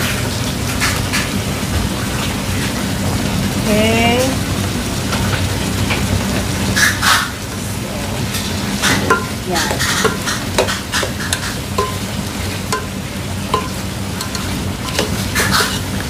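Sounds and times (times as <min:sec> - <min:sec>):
food sizzling in a pan: 0:00.0 - 0:16.0
utensil scraping a pan: 0:08.3 - 0:16.0.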